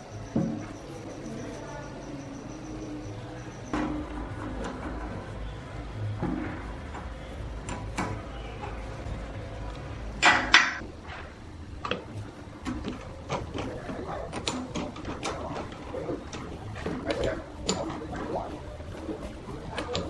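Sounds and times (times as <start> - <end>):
low steady hum: 0.0 - 20.0
clicks and knocks of objects handled: 6.2 - 8.9, 11.8 - 20.0.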